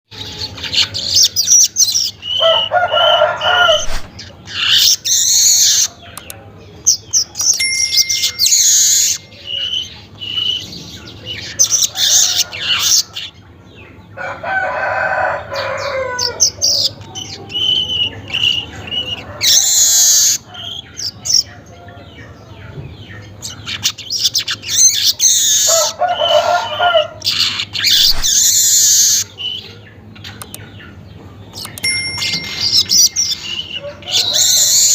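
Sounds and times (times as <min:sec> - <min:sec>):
weaver bird chattering song: 0:03.4 - 0:13.9, 0:16.4 - 0:22.4, 0:23.0 - 0:26.4, 0:27.2 - 0:34.9.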